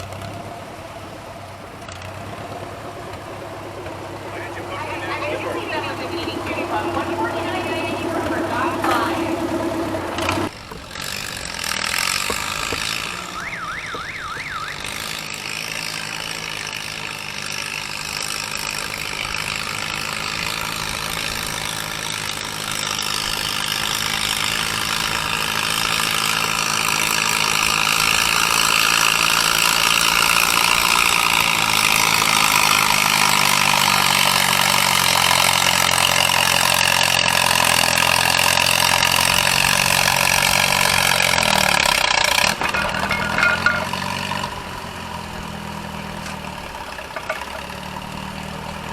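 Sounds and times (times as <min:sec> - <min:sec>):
tractor engine revving hard: 0:00.0 - 0:48.9.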